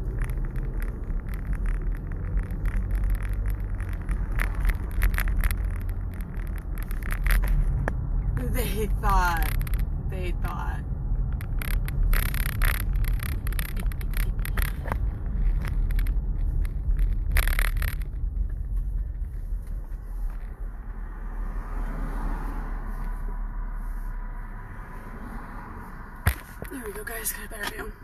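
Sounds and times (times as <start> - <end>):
car engine rumble from inside: 0.0 - 28.0
short clicks and scrapes: 11.2 - 20.6.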